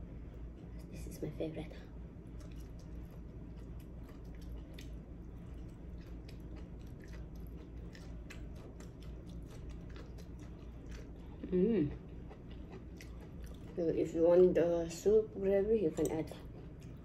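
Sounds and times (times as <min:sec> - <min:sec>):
person chewing crunchy food: 0:02.3 - 0:13.8.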